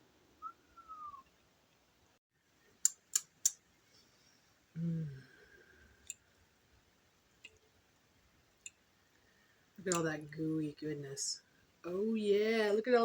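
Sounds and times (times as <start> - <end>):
sharp clicks: 2.8 - 3.6, 9.9 - 10.1
low falling voice hum: 4.7 - 6.0.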